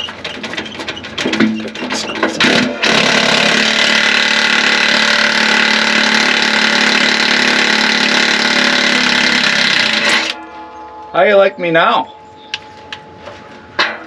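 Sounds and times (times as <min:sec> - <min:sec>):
power tool motor running: 0:02.4 - 0:10.4.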